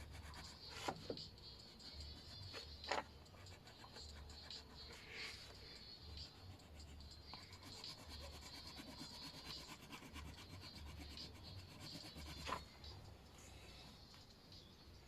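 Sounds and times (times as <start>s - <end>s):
colouring tool rubbing on paper: 0.0s - 2.7s, 3.3s - 5.6s, 6.2s - 12.7s.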